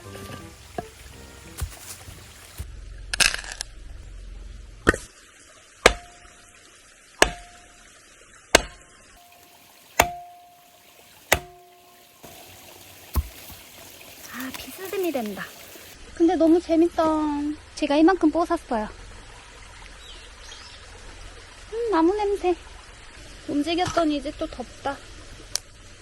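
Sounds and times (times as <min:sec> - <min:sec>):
axe chopping firewood: 0:00.6 - 0:02.6, 0:04.8 - 0:05.1, 0:05.8 - 0:06.3, 0:07.2 - 0:07.7, 0:08.5 - 0:14.8.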